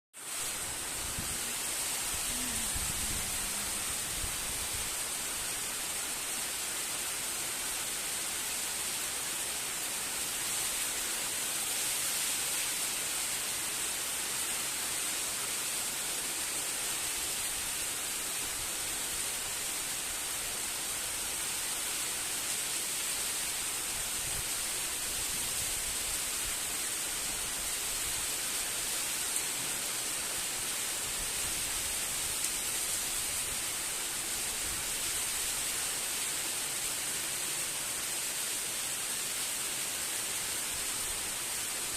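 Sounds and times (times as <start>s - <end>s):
steady rain falling: 0.2s - 41.9s.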